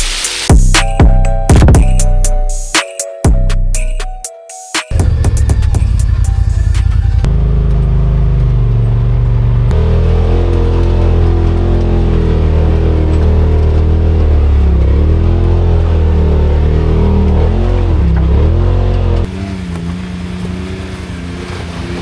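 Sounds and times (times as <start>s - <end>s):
engine revving loud: 4.9s - 22.0s.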